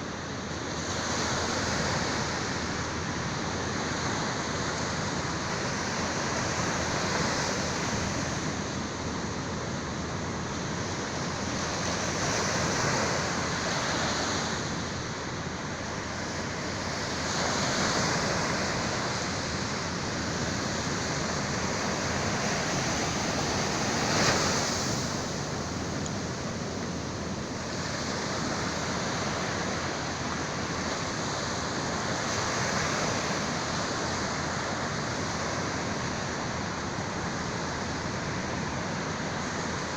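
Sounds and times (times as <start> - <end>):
sea waves breaking: 10.1 - 39.9.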